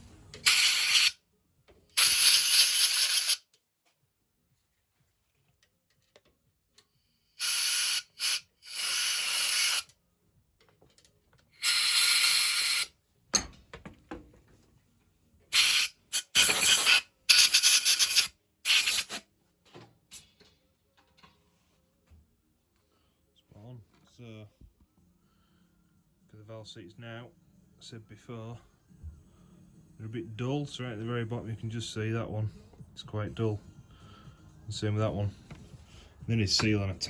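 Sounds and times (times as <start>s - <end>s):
pressurised jet hissing bursts: 2.0s - 3.4s, 7.4s - 9.9s, 11.6s - 12.9s, 15.5s - 19.2s.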